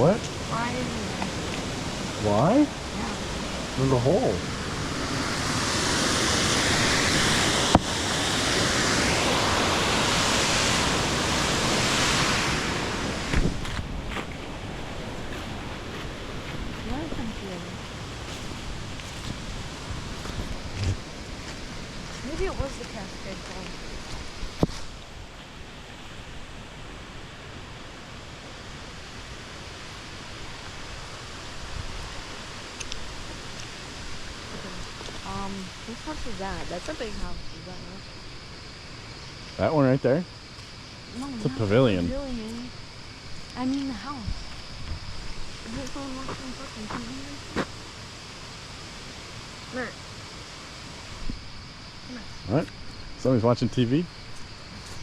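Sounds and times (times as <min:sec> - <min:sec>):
waterfall rushing: 0:00.0 - 0:24.1, 0:41.1 - 0:42.4
faint clicks: 0:32.8 - 0:33.7.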